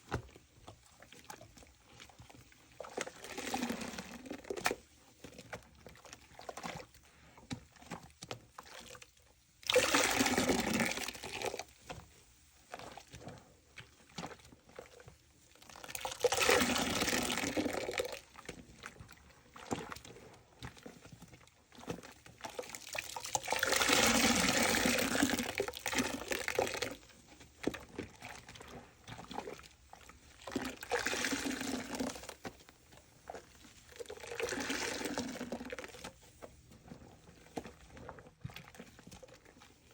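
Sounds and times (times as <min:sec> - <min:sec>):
sponge squeezed gushing water: 0:00.1 - 0:09.0, 0:09.6 - 0:12.0, 0:12.7 - 0:39.9
faint wet crackling: 0:25.7 - 0:39.9.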